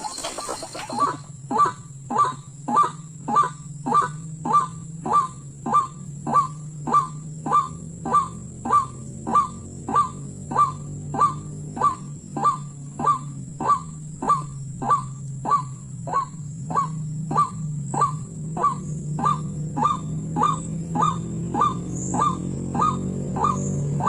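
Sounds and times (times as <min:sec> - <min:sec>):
waterhen honking call: 0:00.0 - 0:01.3.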